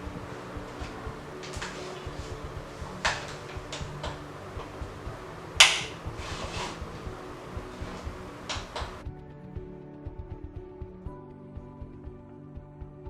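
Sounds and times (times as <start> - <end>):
faint steady hum: 0.0 - 9.0
handling clicks and knocks: 0.0 - 9.0.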